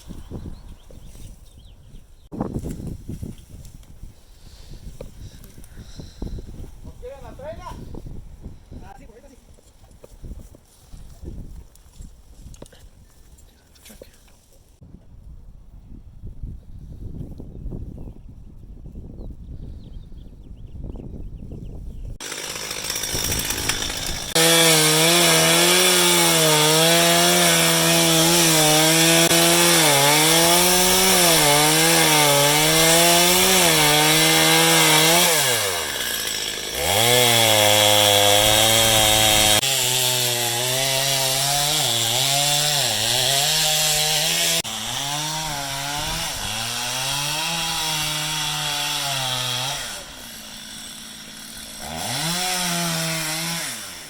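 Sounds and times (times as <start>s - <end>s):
chainsaw cutting wood: 22.2s - 54.0s.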